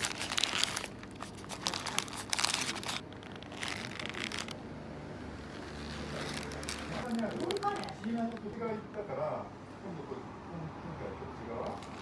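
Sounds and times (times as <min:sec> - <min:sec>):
wrapper crinkling and rustling: 0:00.0 - 0:04.6, 0:05.4 - 0:08.7, 0:11.7 - 0:12.0.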